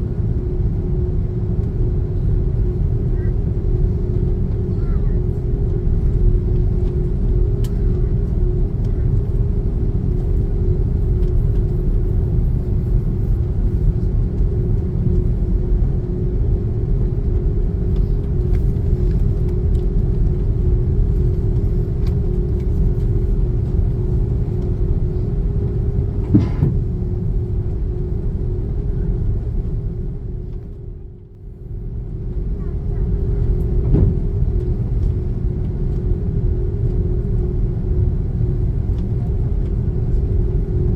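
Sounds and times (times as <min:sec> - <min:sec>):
aircraft cabin rumble: 0:00.0 - 0:40.9
constant hum: 0:00.0 - 0:40.9
brief knock: 0:26.3 - 0:26.8.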